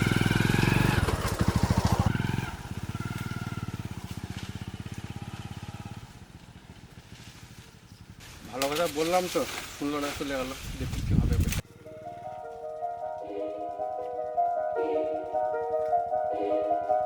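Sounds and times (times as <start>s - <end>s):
motorcycle engine moving off: 0.0s - 13.0s.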